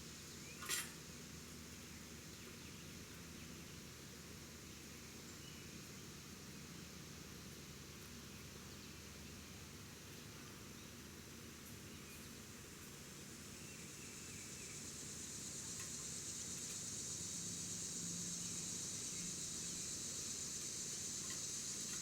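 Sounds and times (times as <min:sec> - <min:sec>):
high-pitched insect chorus: 0:13.8 - 0:22.0.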